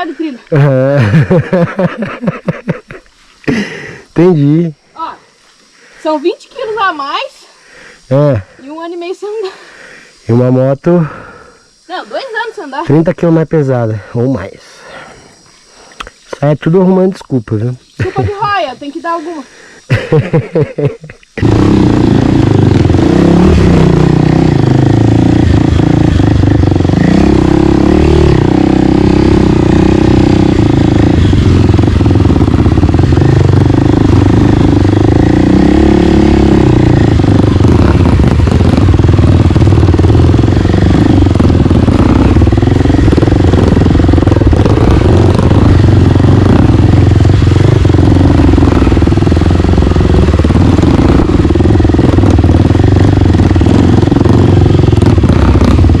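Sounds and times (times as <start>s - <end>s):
dirt bike engine revving: 0.0s - 5.1s, 17.8s - 56.0s.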